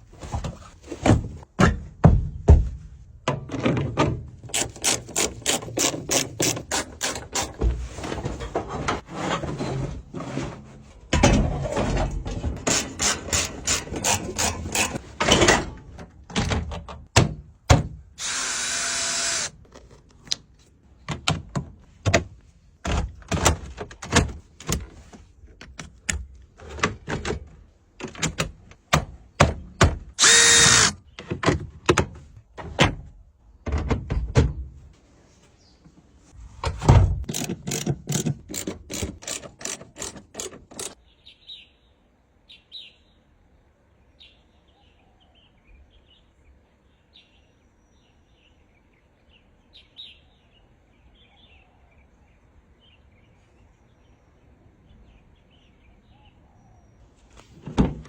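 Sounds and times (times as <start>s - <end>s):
sharp clicks and knocks: 37.2s - 41.0s.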